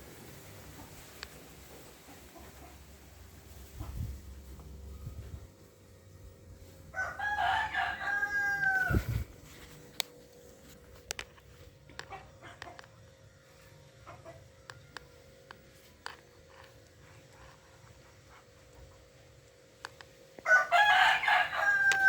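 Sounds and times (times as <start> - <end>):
faint steady hum: 0.0 - 22.0
rooster crowing: 6.9 - 9.3, 20.4 - 22.0.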